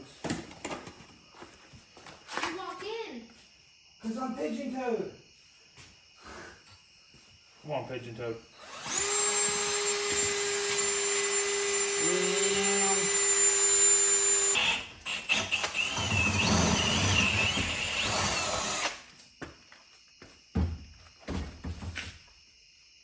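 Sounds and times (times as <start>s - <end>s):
electric power tool whining: 8.6s - 19.1s.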